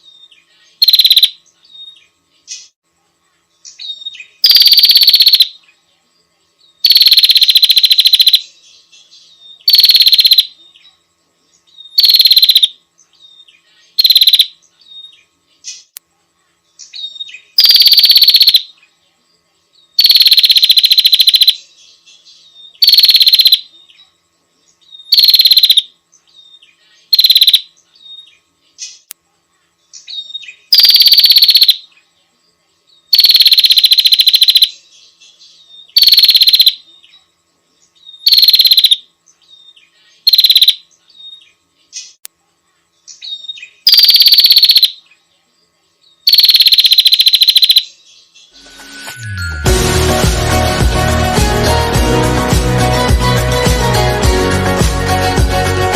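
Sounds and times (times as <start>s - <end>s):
bird buzzing trills: 11.8s - 15.8s, 40.1s - 40.8s.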